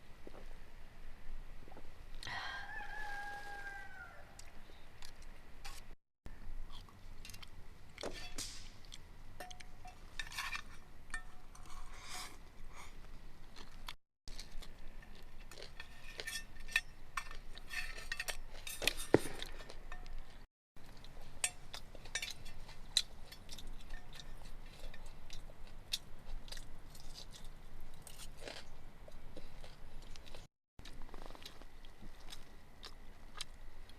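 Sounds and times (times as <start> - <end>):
person chewing: 13.5 - 16.3, 17.3 - 33.9
utensils clinking on dishes: 15.7 - 19.2, 21.4 - 25.1.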